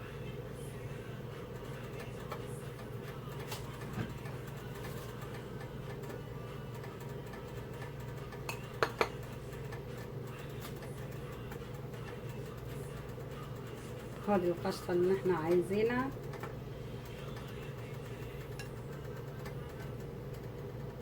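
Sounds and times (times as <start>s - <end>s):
steady low hum: 0.0s - 21.0s
metal spoon knocking on pot: 8.5s - 9.2s.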